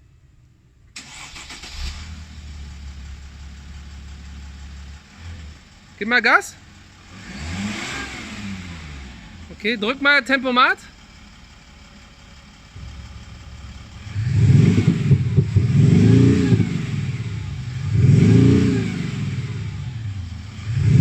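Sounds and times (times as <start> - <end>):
diesel engine: 0.0 - 21.0
synthetic engine exhaust note: 12.7 - 21.0.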